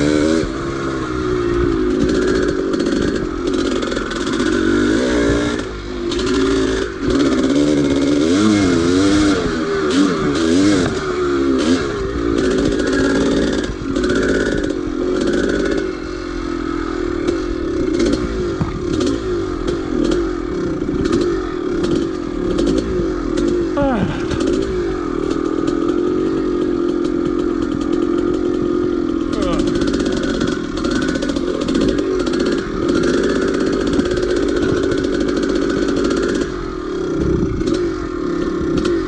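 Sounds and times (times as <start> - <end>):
two-stroke motorcycle engine revving: 0.0 - 39.0
knocks and clatter: 17.3 - 26.1.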